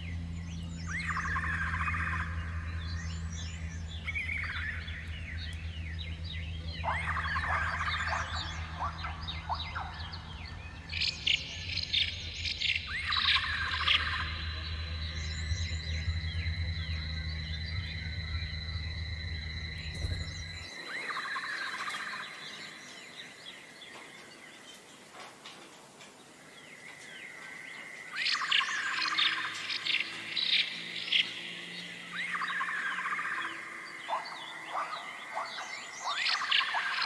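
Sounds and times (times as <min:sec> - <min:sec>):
low hum: 0:00.0 - 0:23.4
steady high whine: 0:00.0 - 0:23.8
songbird trills: 0:00.0 - 0:37.0.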